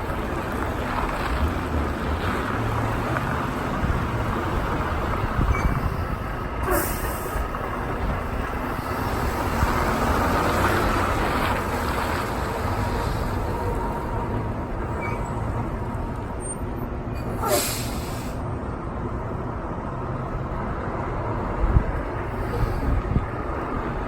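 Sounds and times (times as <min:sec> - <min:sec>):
diesel truck engine rumbling: 0:00.0 - 0:24.0
air brakes hissing: 0:06.6 - 0:07.5, 0:17.2 - 0:18.4.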